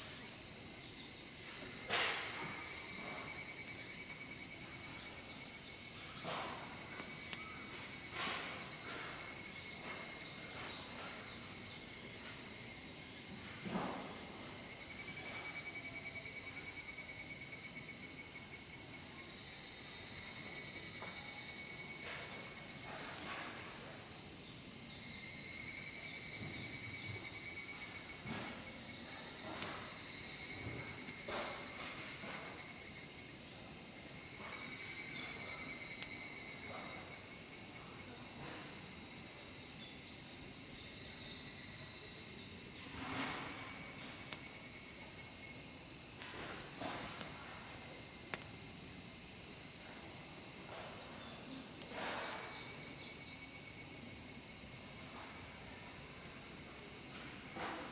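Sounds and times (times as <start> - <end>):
insects chorus: 0.0 - 57.9
campfire crackling: 48.2 - 48.6.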